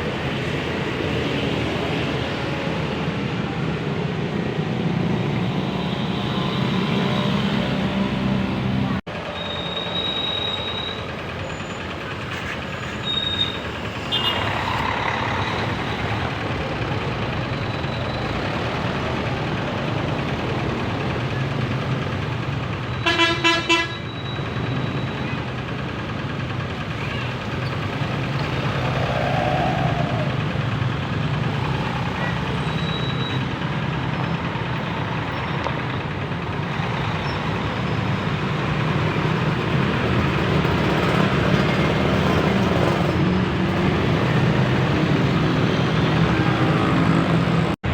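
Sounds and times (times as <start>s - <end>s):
bus engines running: 0.0s - 47.9s
heavy road traffic: 0.0s - 47.9s
bus horn toots: 23.0s - 24.1s.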